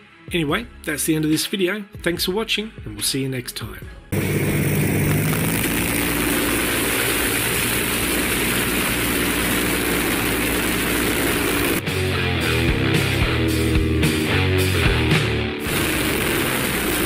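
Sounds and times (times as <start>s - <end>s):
motorcycle engine running: 4.2s - 11.8s, 15.6s - 17.0s.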